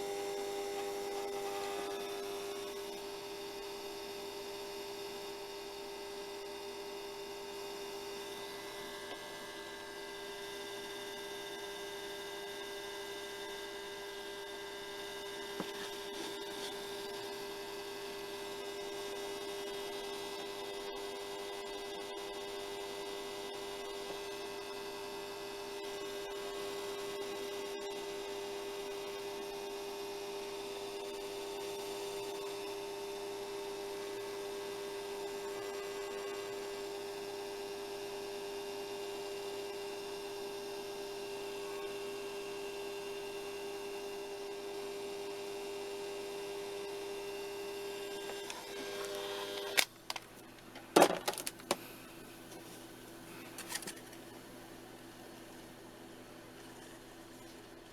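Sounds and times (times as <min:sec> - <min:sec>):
hair dryer running: 0:47.9 - 0:49.9.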